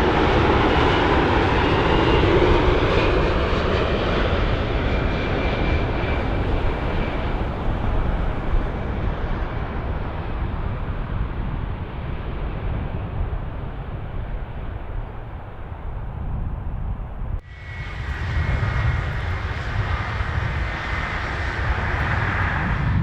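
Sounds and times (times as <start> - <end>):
jet engine rumble: 0.0 - 23.0
jet engine hiss: 17.4 - 23.0.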